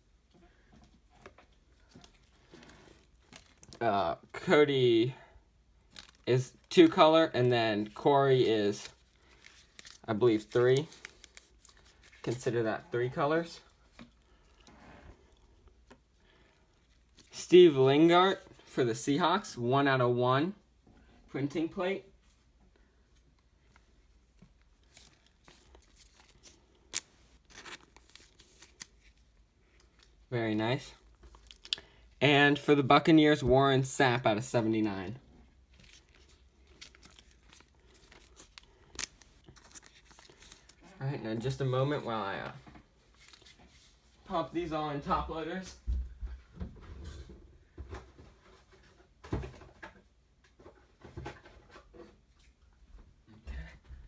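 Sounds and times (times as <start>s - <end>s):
wrapper tearing and crinkling: 5.9s - 12.4s, 24.8s - 29.2s, 31.3s - 31.8s, 35.8s - 41.7s
cards sliding into plastic sleeves: 6.8s - 12.6s, 24.5s - 30.1s, 35.7s - 42.6s.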